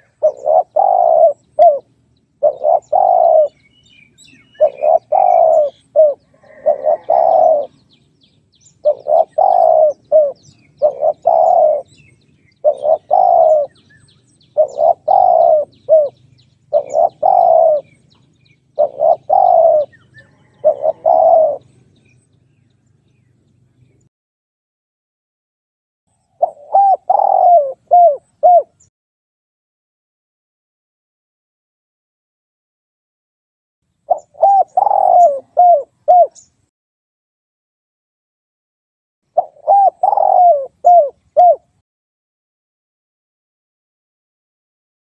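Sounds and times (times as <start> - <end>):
dove cooing: 0.0 - 8.0, 8.7 - 22.0, 26.4 - 28.9, 34.1 - 36.5, 39.4 - 41.8.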